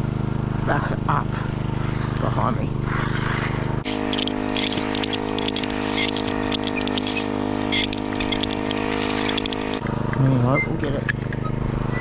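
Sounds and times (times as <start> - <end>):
engine running: 1.4 - 10.4
sharp scraping clicks: 3.0 - 9.8.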